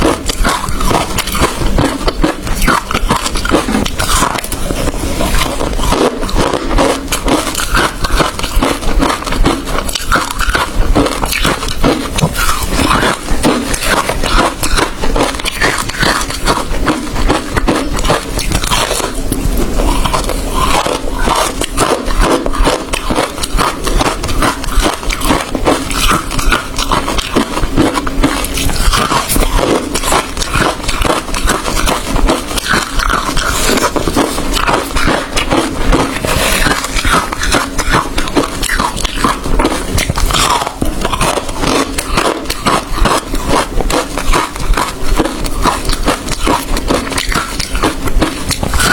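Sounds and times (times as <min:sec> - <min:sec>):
person chewing ice crunching: 0:00.0 - 0:48.9.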